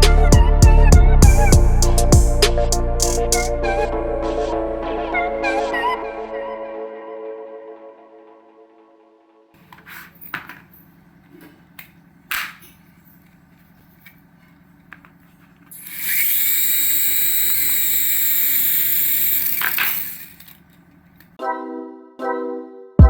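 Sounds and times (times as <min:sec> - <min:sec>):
small electric motor whining: 0:15.7 - 0:20.6.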